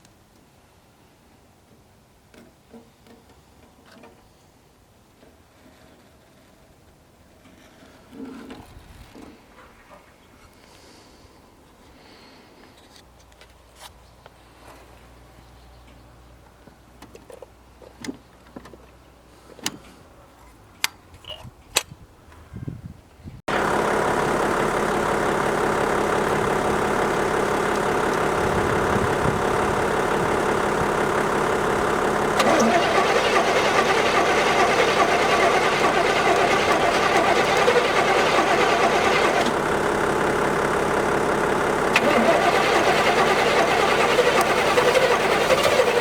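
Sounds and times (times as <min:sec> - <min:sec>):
car engine running: 0:23.5 - 0:46.0.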